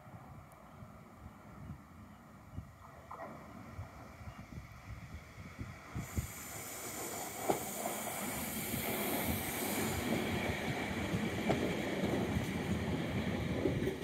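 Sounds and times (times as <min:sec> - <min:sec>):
train wheels rushing on rail: 0:03.9 - 0:14.0
wheels clacking over rail joints: 0:06.8 - 0:14.0.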